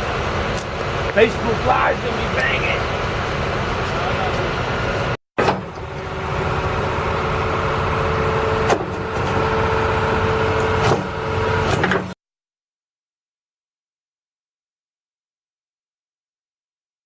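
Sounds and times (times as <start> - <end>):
excavator engine running: 0.0 - 12.2
hydraulic whine: 0.0 - 12.2.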